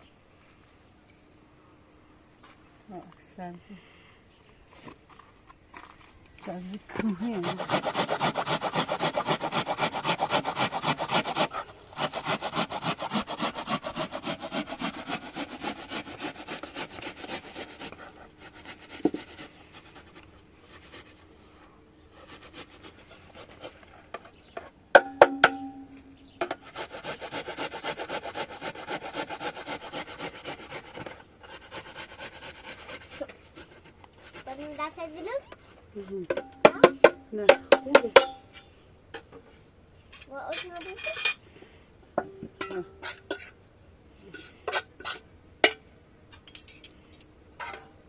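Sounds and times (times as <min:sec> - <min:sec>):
hand rubbing strokes: 0:06.5 - 0:24.1.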